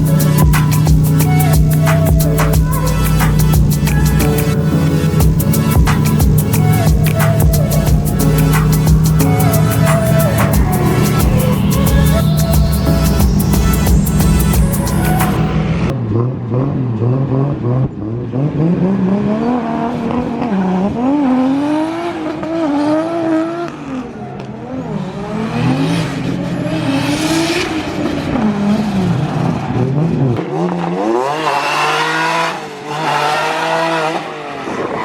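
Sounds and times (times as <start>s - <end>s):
car engine revving: 0.0s - 34.8s.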